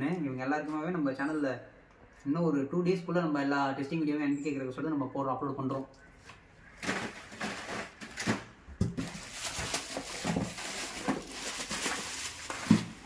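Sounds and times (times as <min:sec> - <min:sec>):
cardboard boxes rustling and scraping: 0:06.8 - 0:13.0.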